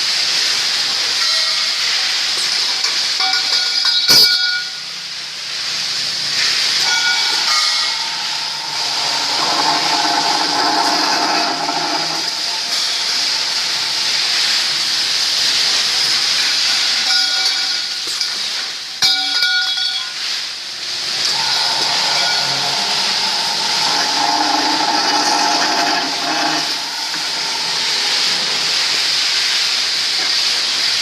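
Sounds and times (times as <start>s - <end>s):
circular saw cutting steel pipe: 6.4s - 16.2s, 20.8s - 30.3s.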